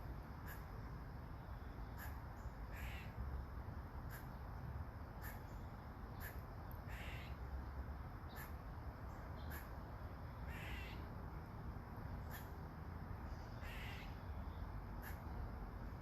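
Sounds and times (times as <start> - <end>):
crow cawing: 2.0 - 3.1, 6.2 - 7.4, 10.5 - 11.0, 13.6 - 14.2.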